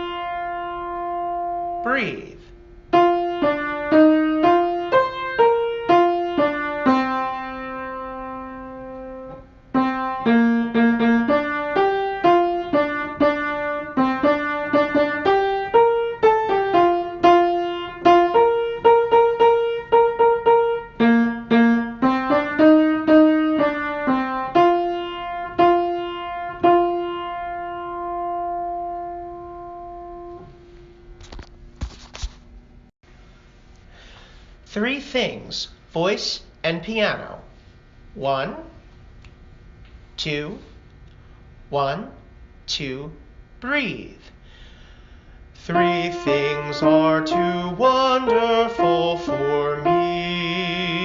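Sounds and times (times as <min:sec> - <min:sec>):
solo piano melody: 0:00.0 - 0:01.9, 0:02.9 - 0:31.0, 0:45.7 - 0:51.0.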